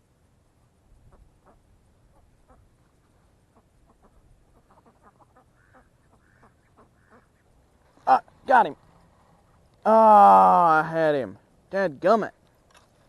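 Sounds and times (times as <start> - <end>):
duck quacking: 3.5 - 7.5.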